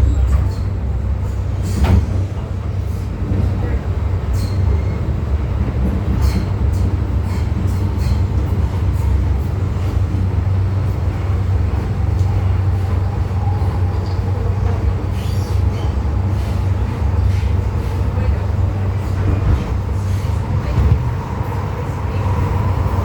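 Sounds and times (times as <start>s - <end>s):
train wheels rumbling: 0.0s - 23.0s.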